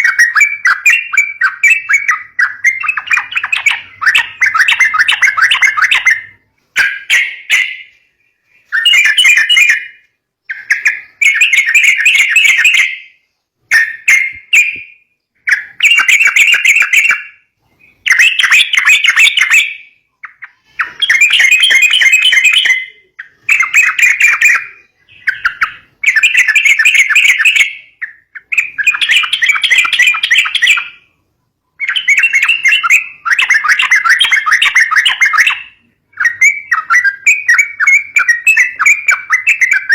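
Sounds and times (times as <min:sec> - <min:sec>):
bird chattering call: 0:00.0 - 0:08.0.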